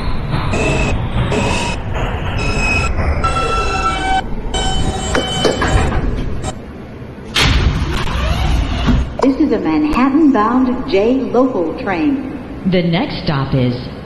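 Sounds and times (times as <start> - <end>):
subway train rumbling on rails: 0.0 - 7.4
sudden loud burst of noise: 7.2 - 9.2.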